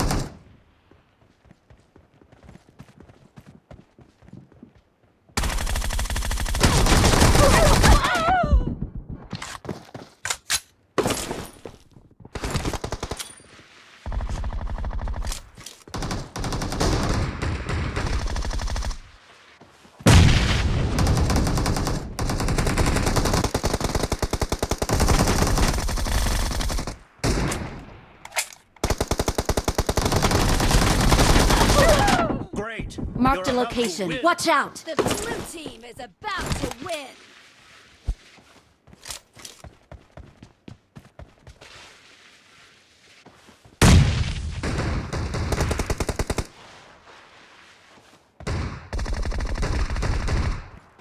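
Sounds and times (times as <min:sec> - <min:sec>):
video game automatic gunfire: 0:21.0 - 0:27.0, 0:28.8 - 0:32.0.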